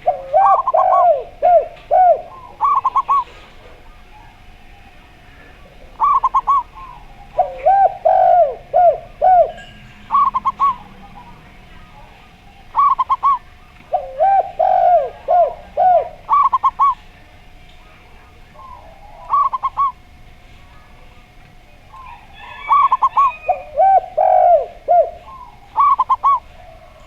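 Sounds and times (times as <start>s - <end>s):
low swooping dove coos: 0.0s - 27.0s
high staccato dove coos: 6.0s - 11.8s, 12.7s - 17.0s, 21.9s - 26.5s.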